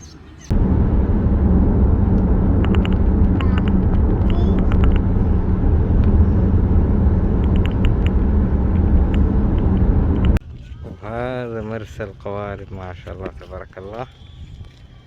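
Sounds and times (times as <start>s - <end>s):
low rumble: 0.5s - 10.4s.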